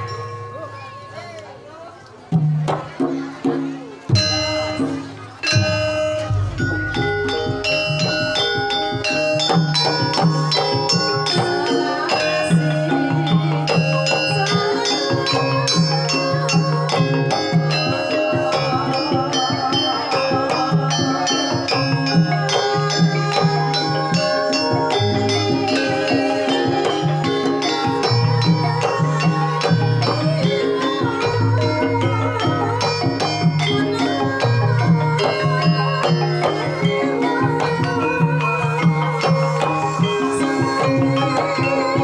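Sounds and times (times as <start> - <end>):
ringing struck metal notes: 0.0 - 42.0
low drum pulse: 5.6 - 9.4.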